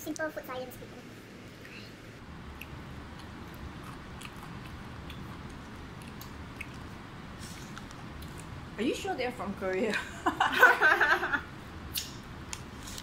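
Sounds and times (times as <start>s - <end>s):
low room rumble: 0.0s - 13.0s
people chewing toast: 2.5s - 8.6s.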